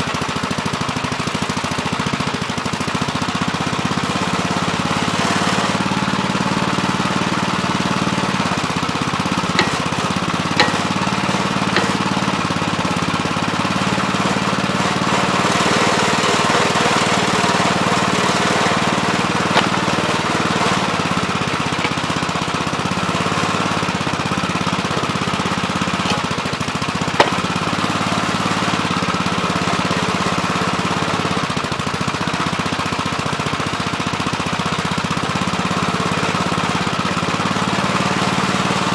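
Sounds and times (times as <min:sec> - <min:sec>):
backhoe engine running under load: 0:00.0 - 0:38.9
sharp metallic clanks: 0:08.6 - 0:13.0, 0:18.6 - 0:22.3, 0:27.1 - 0:27.6.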